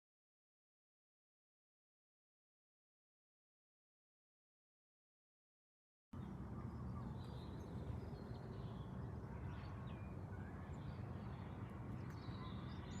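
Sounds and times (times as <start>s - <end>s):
faint bird chirps: 6.2s - 13.0s.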